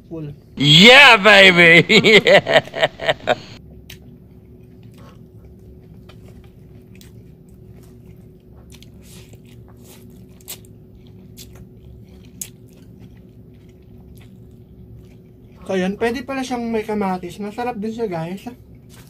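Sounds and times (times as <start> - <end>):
wet chewing: 3.8 - 15.7, 18.6 - 19.0.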